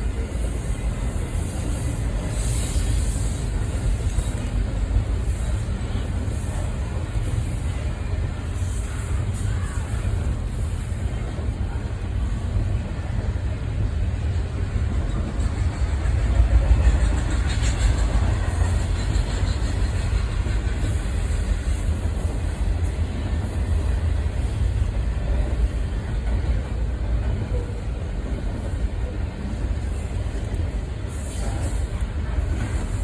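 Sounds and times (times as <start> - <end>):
passing train rumble: 0.0 - 33.0.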